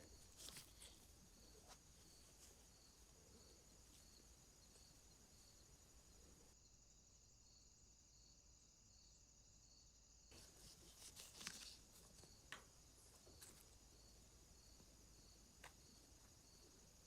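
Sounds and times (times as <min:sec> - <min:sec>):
light scraping: 0:00.0 - 0:02.8, 0:10.3 - 0:12.4.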